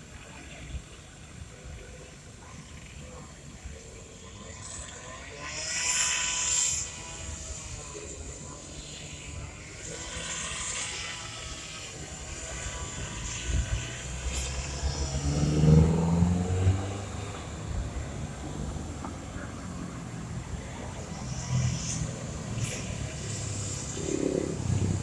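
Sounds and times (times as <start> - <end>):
traffic rumble: 6.2 - 25.0
vehicle engine passing close: 9.2 - 25.0.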